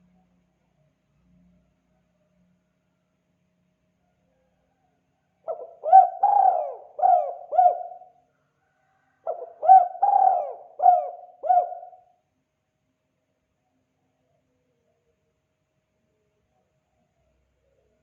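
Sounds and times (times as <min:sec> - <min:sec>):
dove cooing: 0:05.5 - 0:08.2, 0:09.2 - 0:12.1.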